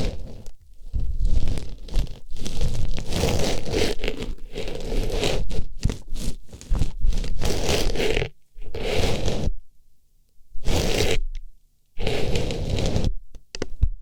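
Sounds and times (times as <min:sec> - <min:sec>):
crinkling rustling on microphone: 0:00.0 - 0:09.4.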